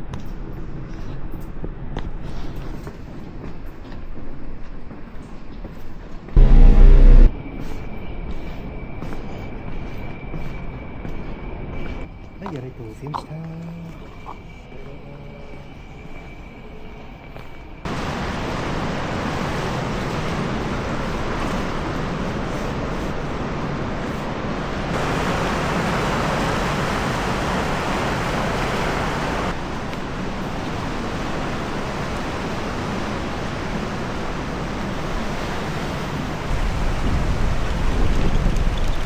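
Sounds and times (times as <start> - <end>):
wind: 0.0 - 39.0
deep rumble: 6.4 - 7.3
sea surf on rocky shore: 17.9 - 39.0.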